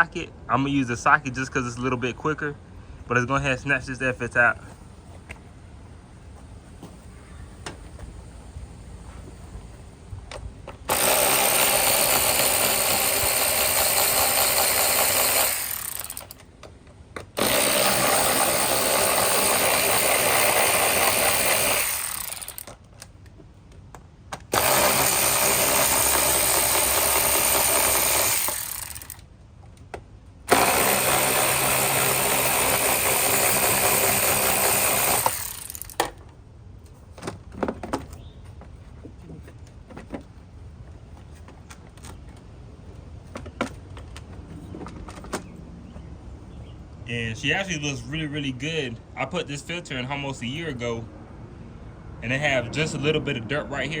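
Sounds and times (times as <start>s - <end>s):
power drill driving screws: 10.9s - 16.4s, 17.4s - 22.8s, 24.5s - 29.2s, 30.5s - 36.0s.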